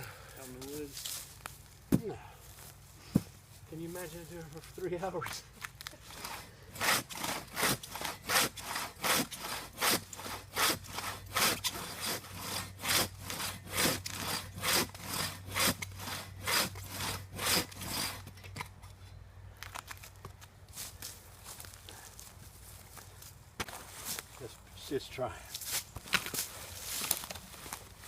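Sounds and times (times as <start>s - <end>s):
hand saw cutting log: 6.0s - 18.6s.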